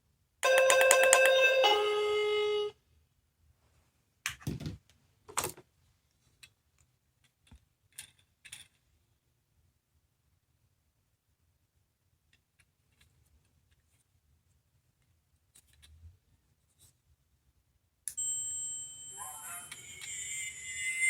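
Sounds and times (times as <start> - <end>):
buzzy electronic toy tone: 0.4 - 2.7, 18.2 - 21.0.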